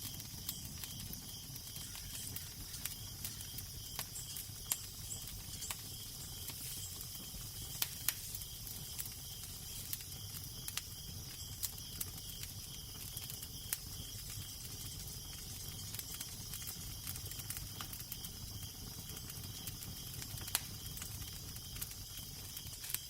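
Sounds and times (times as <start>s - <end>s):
wood fire crackling and popping: 0.0s - 23.0s
low wind rumble and hiss: 0.6s - 17.4s.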